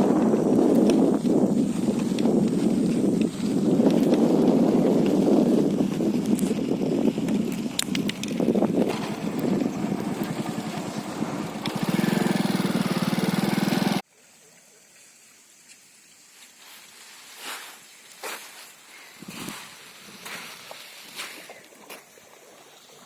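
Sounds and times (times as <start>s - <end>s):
quiet outdoor background: 0.0s - 23.0s
small engine running: 7.1s - 14.0s.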